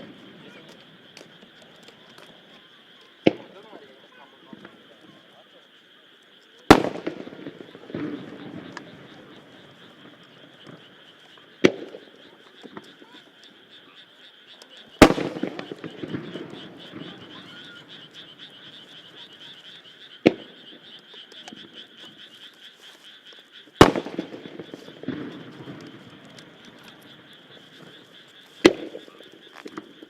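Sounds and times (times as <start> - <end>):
firework shells booming: 0.0 - 2.4, 3.2 - 3.8, 6.7 - 13.1, 15.0 - 22.2, 23.8 - 30.0
frogs croaking: 0.0 - 30.0.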